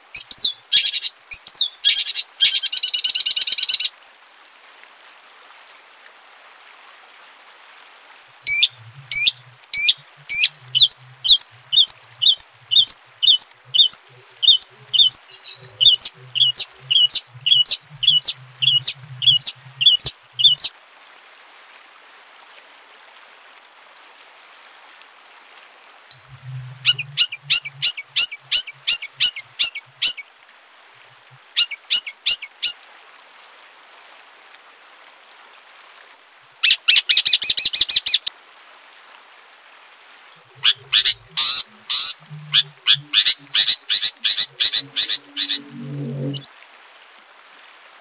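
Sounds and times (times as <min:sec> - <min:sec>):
songbird rattling trill: 0:00.2 - 0:03.9, 0:08.5 - 0:20.7, 0:26.9 - 0:30.2, 0:31.6 - 0:32.7
songbird down-slurred notes: 0:08.5 - 0:20.7.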